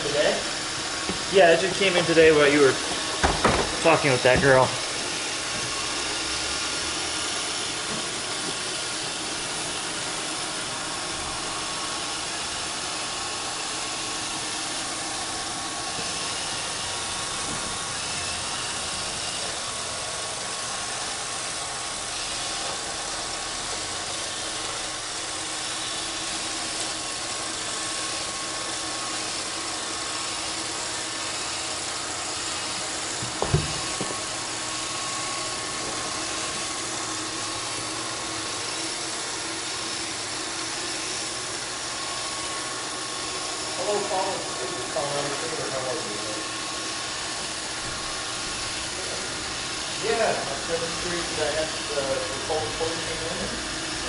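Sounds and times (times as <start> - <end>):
robot vacuum whirring: 0.0 - 54.0
short knock: 33.2 - 34.1.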